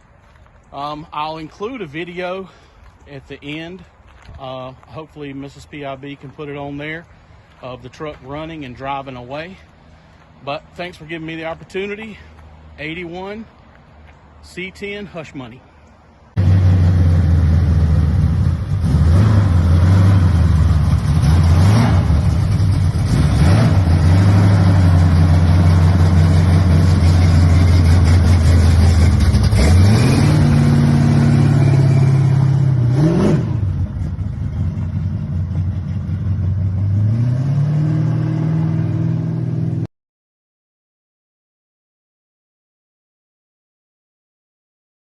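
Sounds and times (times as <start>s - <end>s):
truck engine revving: 16.4s - 39.9s.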